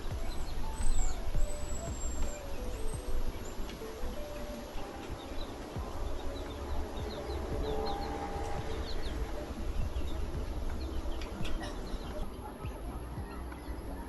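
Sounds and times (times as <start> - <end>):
background hiss: 0.0 - 14.0
small birds chirping: 0.0 - 14.0.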